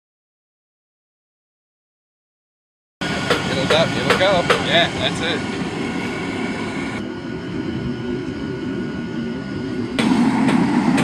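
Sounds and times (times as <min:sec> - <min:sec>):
forge burner rushing: 0:03.0 - 0:11.0.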